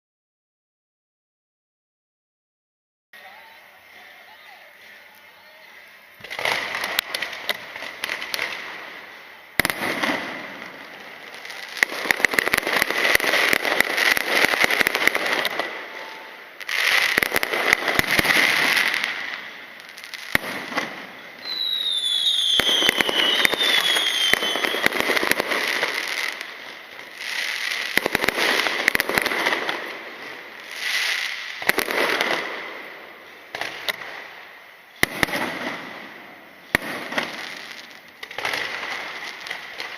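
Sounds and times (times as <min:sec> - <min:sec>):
fireworks crackling bursts: 0:03.2 - 0:39.9
falling whistles: 0:21.4 - 0:24.8.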